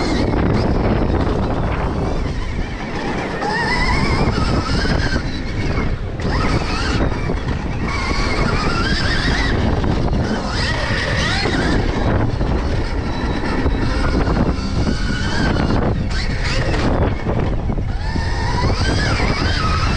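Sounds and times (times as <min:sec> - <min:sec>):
bike rumbling over track: 0:00.0 - 0:19.9
electric motor whining: 0:00.0 - 0:19.9
wind noise on microphone: 0:00.0 - 0:19.9.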